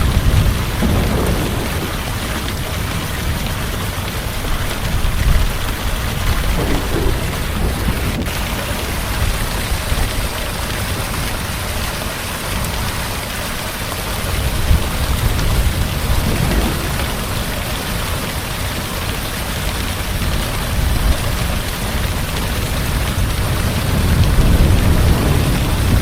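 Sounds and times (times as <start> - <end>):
thunder rumble: 0.0 - 13.2, 14.0 - 26.0
heavy rain hiss: 0.0 - 26.0.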